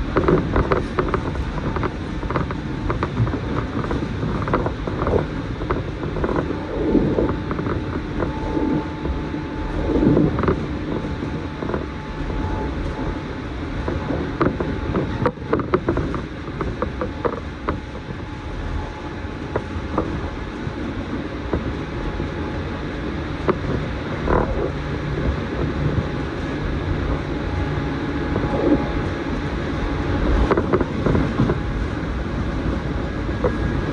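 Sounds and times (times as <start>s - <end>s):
train body creaks and clicks: 0.0s - 31.8s, 32.5s - 33.9s
faint steady hums: 0.0s - 33.9s
train wheels rumbling on rail: 0.0s - 33.9s.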